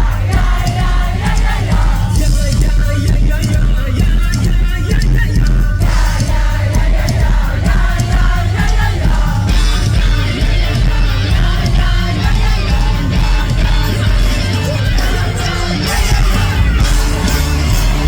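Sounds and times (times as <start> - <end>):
crowd yelling: 0.0 - 2.6, 5.8 - 18.0
live rock band playing: 0.0 - 18.0
person singing: 0.0 - 18.0.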